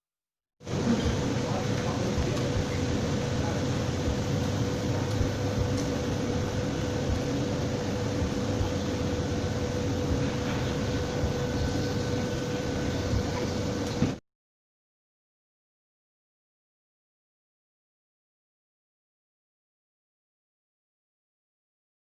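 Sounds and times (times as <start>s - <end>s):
machine hum and hiss: 0.6s - 14.2s.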